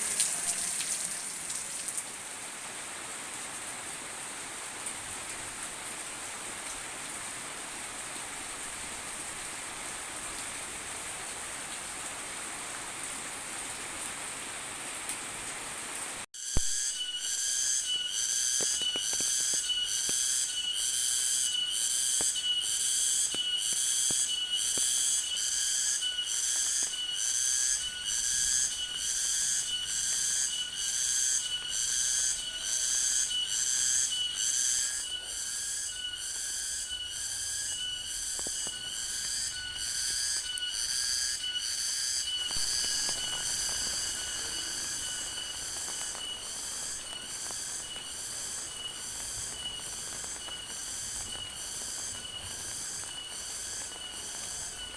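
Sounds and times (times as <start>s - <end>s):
insects calling in chorus: 16.4s - 54.9s.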